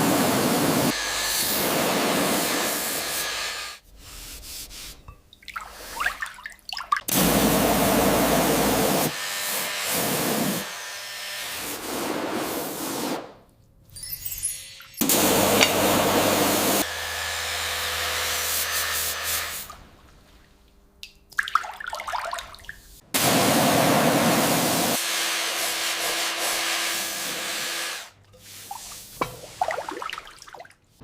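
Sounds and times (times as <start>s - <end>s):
workshop power tool running: 0.0s - 3.8s, 7.1s - 13.0s, 14.5s - 20.0s, 23.2s - 28.2s.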